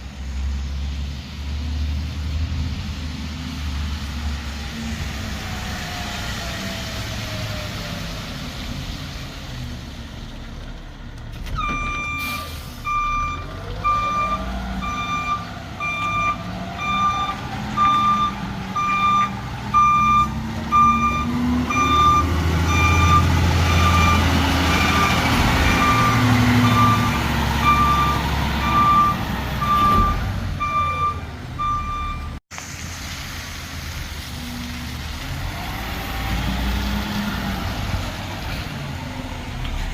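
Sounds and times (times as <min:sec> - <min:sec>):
reversing alarm beeping: 0:11.6 - 0:32.4.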